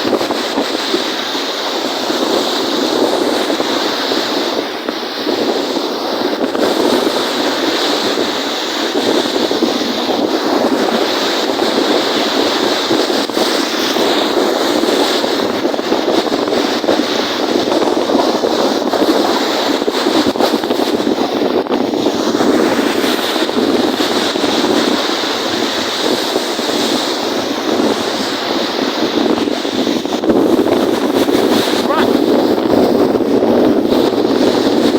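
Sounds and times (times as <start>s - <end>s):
waves washing in: 0.0s - 34.9s
wind blowing on microphone: 0.0s - 34.9s.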